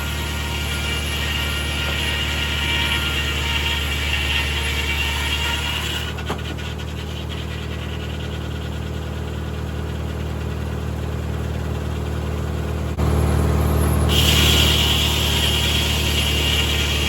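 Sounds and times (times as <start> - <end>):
tractor engine running: 6.1 - 17.0.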